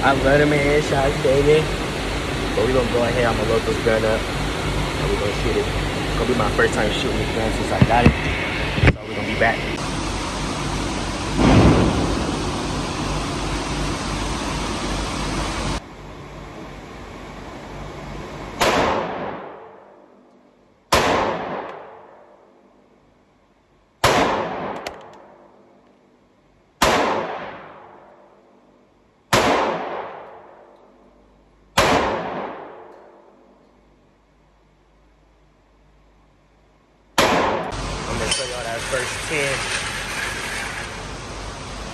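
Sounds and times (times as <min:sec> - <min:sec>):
steady loud noise: 0:00.0 - 0:20.1, 0:34.2 - 0:41.9
gunshots with ringing echo: 0:20.9 - 0:22.4, 0:24.0 - 0:25.6, 0:26.8 - 0:28.3, 0:29.3 - 0:30.8, 0:31.8 - 0:33.4, 0:37.2 - 0:37.7.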